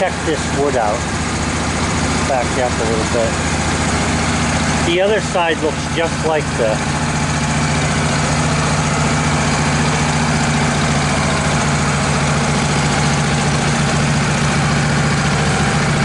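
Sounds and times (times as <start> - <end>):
sawmill engine idling: 0.0 - 16.0.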